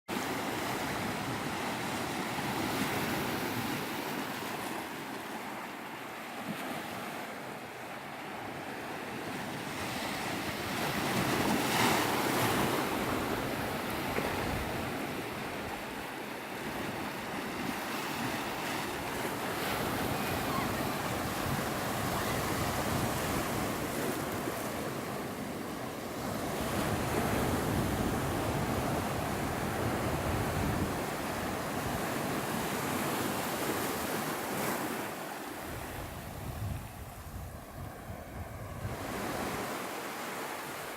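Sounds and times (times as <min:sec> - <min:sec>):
sea surf washing onto beach: 0:10.7 - 0:40.9
wind on microphone: 0:12.3 - 0:16.0, 0:16.7 - 0:33.1, 0:35.6 - 0:39.8.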